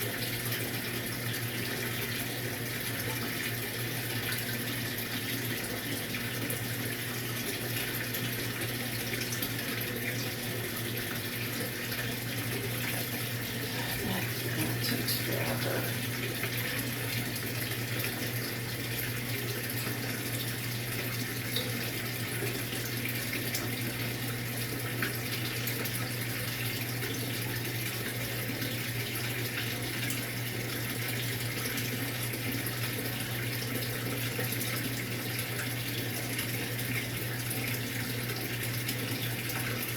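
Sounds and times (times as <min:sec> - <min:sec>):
washer low hum: 0:00.0 - 0:39.9
water rushing into washer tub: 0:00.0 - 0:39.9.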